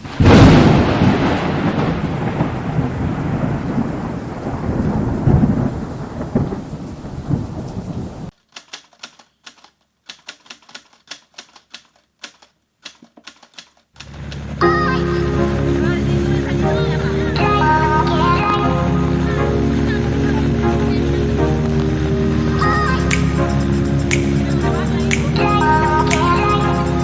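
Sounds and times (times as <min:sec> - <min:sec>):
rain: 0:00.0 - 0:08.3, 0:14.0 - 0:27.0
thunderclap: 0:00.0 - 0:08.3
typewriter key clicks: 0:08.4 - 0:14.4.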